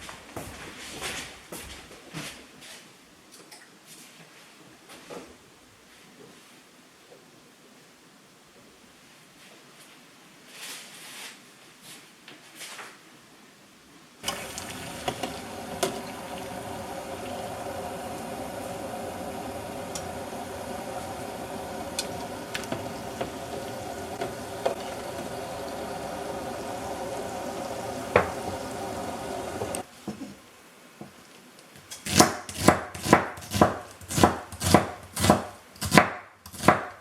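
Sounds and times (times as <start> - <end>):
water running steadily: 14.2 - 29.9.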